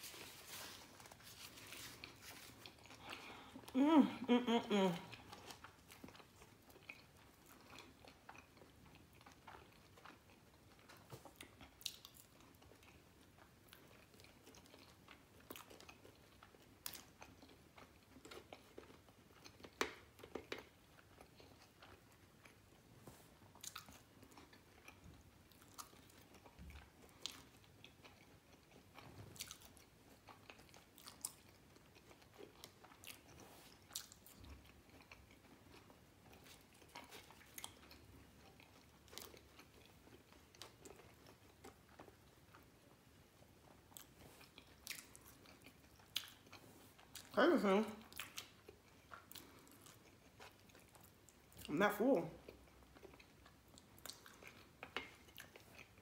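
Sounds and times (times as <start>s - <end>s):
person chewing and biting: 0.0s - 3.7s, 5.1s - 47.4s, 48.0s - 51.7s, 52.5s - 56.0s.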